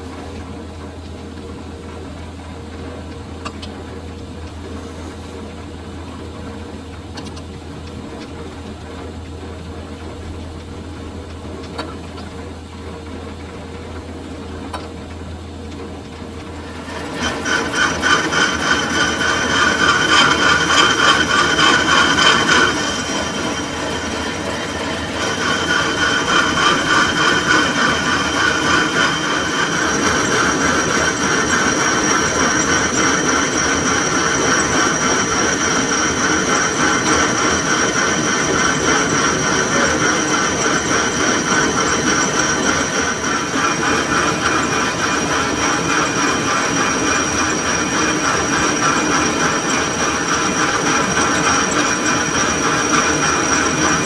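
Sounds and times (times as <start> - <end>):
metal lathe humming: 16.3 - 54.0
lathe tool scraping metal: 16.5 - 54.0.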